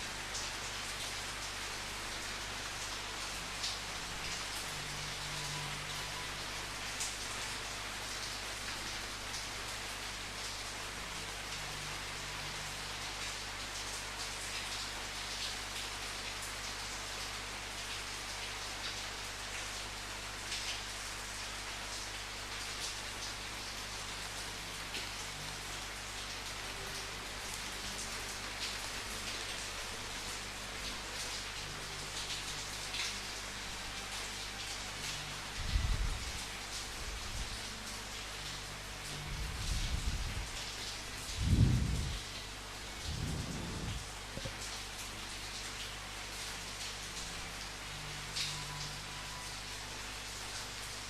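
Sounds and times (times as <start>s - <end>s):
raindrops pattering: 0.0s - 51.0s
steady rain hissing: 0.0s - 51.0s
thunder rumbling: 41.4s - 42.2s, 43.1s - 44.5s.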